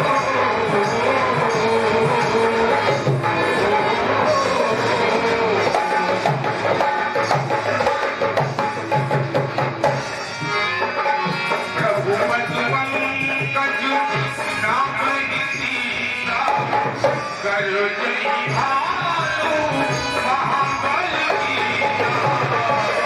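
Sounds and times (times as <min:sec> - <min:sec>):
held instrumental melody: 0:00.0 - 0:23.0
tabla rhythm: 0:00.0 - 0:23.0.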